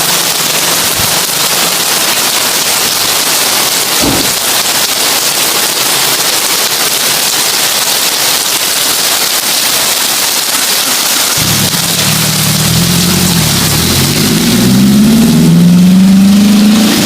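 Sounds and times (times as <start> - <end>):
heavy rain on a tin roof: 0.0 - 17.0
brief low thump: 4.0 - 4.4.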